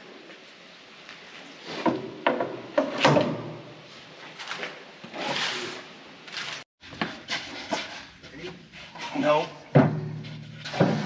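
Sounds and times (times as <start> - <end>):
metal plate sliding scrape: 5.1 - 9.4, 10.2 - 11.0
metal knocks and clanks: 9.0 - 11.0.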